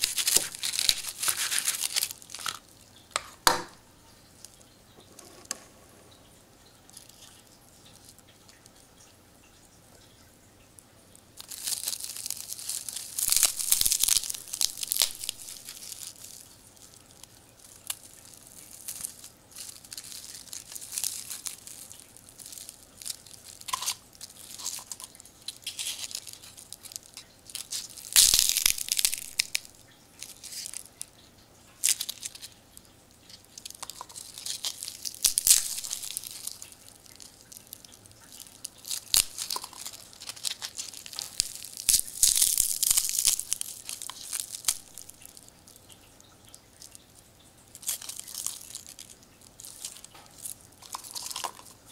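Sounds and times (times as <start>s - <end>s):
papery crackling and tearing: 0.0s - 2.8s, 11.4s - 31.1s, 31.8s - 32.6s, 33.3s - 45.9s, 47.8s - 51.9s.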